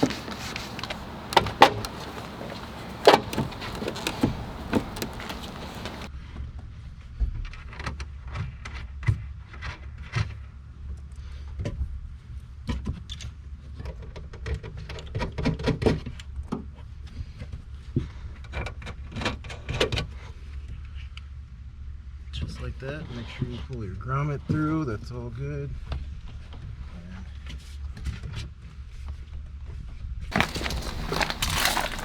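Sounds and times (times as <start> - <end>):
car tail light clicks and rattles: 0.0 - 6.1.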